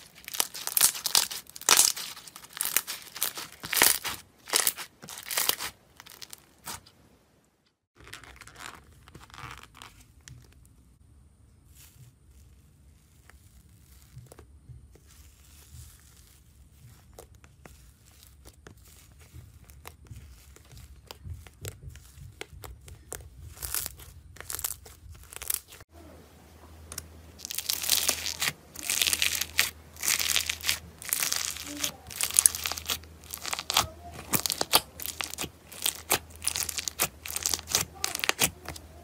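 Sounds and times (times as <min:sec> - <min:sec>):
foam-bead slime crunching: 0:00.0 - 0:06.9, 0:11.6 - 0:25.9, 0:26.7 - 0:39.0
slime crackling and popping: 0:00.0 - 0:06.9, 0:15.0 - 0:25.8, 0:26.8 - 0:39.0.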